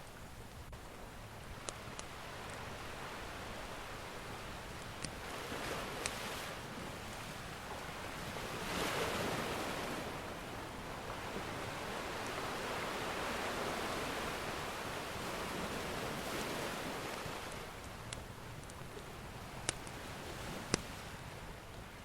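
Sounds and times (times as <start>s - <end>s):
ocean waves breaking: 0.0s - 22.0s
wood fire crackling: 4.2s - 6.4s, 17.1s - 21.0s.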